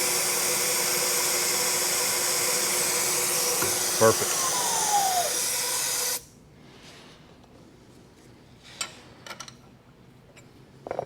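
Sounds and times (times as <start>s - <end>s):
machine-shop hum: 0.0s - 6.3s.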